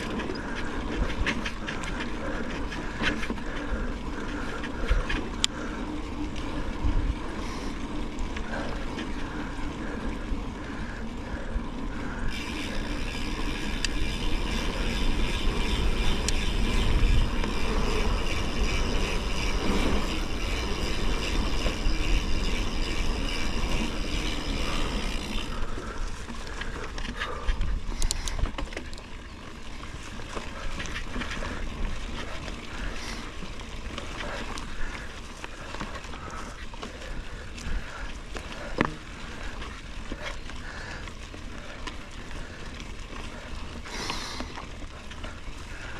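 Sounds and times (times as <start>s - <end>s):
steady high whirring: 12.2s - 25.8s
bike rattling over ground: 12.2s - 27.4s.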